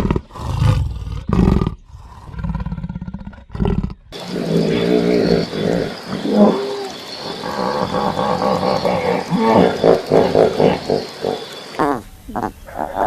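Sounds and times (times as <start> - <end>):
animal grunting: 0.0 - 13.0
high-pitched animal calls: 4.2 - 13.0.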